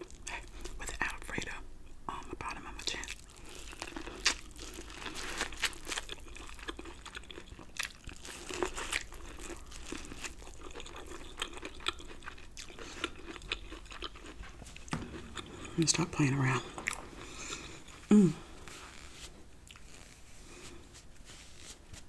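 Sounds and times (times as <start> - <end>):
chewing corn crunches: 2.9 - 15.9.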